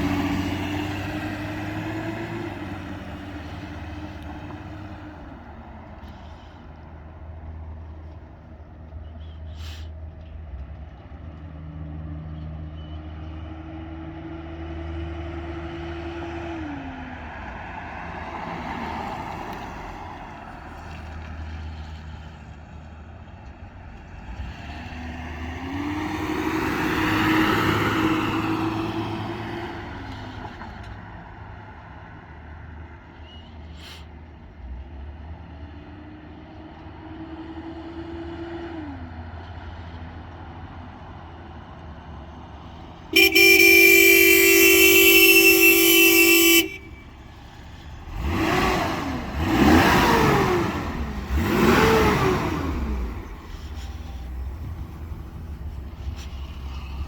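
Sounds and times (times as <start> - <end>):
car engine revving while driving: 0.0 - 4.9, 24.2 - 29.9, 48.0 - 53.5.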